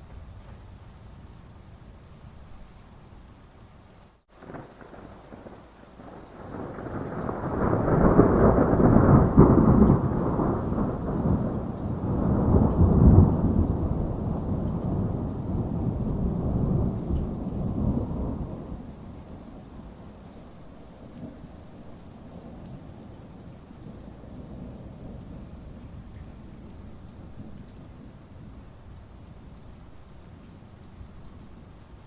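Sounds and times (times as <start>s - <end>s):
steady rain: 0.0s - 32.0s
rolling thunder: 4.4s - 28.6s.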